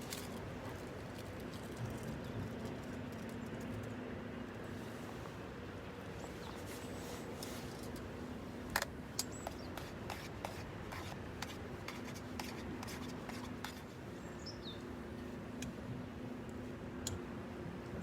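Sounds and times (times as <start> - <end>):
outdoor background noise: 0.0 - 18.0
light clicks and ticks: 16.4 - 17.2.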